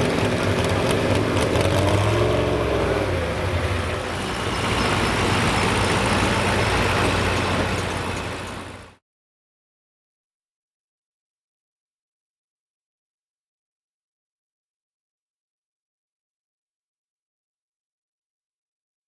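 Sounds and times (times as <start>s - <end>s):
truck engine running loud: 0.0s - 9.0s.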